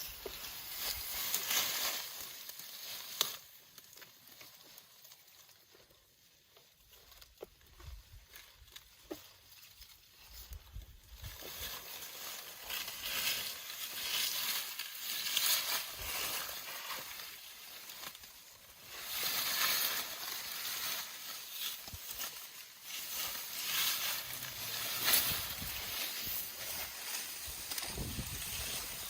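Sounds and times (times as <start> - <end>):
elephants chewing branches: 0.0 - 29.0
leafy branches rustling and crackling: 0.0 - 29.0.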